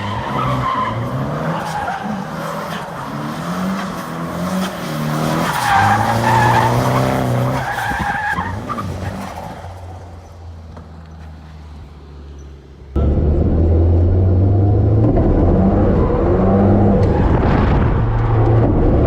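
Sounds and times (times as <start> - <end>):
car engine revving: 12.9 - 19.0.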